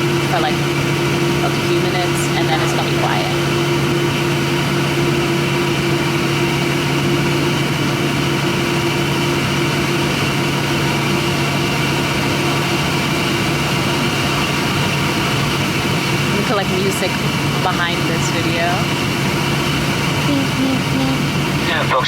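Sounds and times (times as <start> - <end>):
airliner engines idling: 0.0 - 22.0
cabin air rushing: 20.3 - 22.0.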